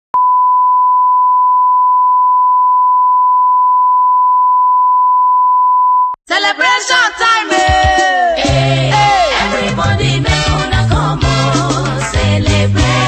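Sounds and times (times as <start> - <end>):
pure test tone beep: 0.2 - 6.2
music with singing: 6.3 - 13.0.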